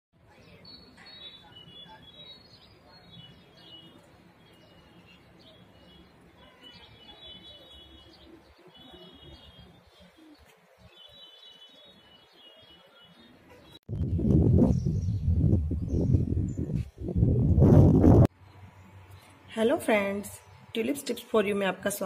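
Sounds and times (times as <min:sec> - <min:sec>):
low background rumble: 0:13.9 - 0:18.3.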